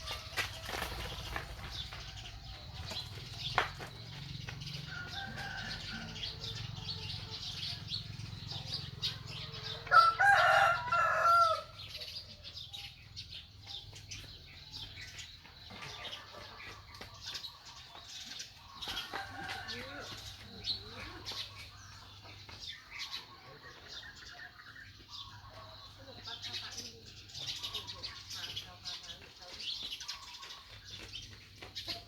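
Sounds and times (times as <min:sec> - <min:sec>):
rooster crowing: 0:04.8 - 0:07.2, 0:09.5 - 0:11.8.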